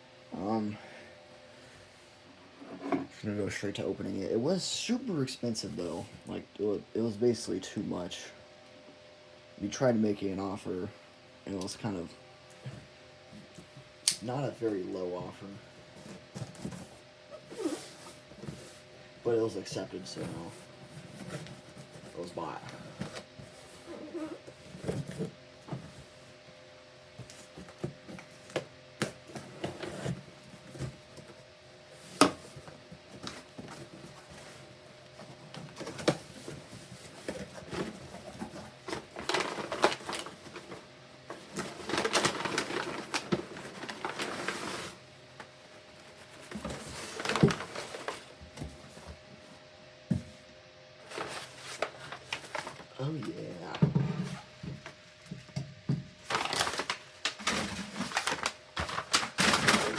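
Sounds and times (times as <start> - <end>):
tape tearing and rustling: 37.3 - 40.8, 56.2 - 59.9.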